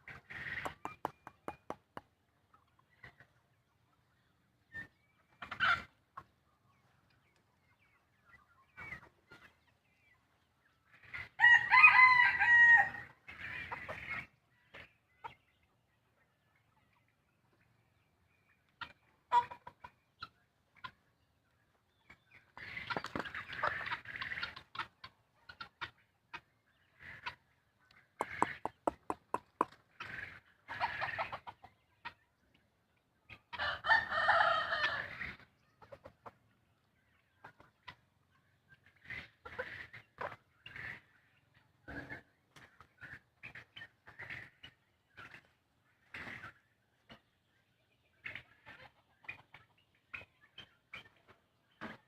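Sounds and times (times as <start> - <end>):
chickens clucking: 0.0 - 52.0
rooster crowing: 11.4 - 13.0, 33.6 - 35.1.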